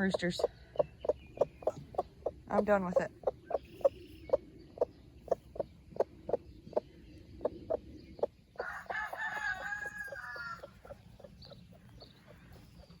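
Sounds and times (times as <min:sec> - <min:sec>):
hen clucking: 0:00.0 - 0:13.0
rooster crowing: 0:08.6 - 0:10.7.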